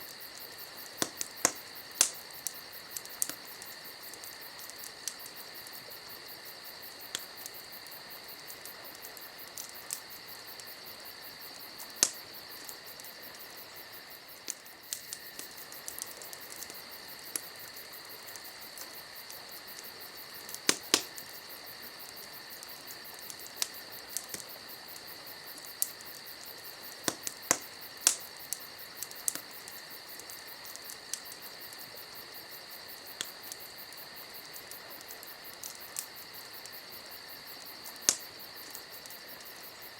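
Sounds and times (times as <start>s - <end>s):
campfire crackling and popping: 0.0s - 39.9s
insects chirring: 0.0s - 39.9s.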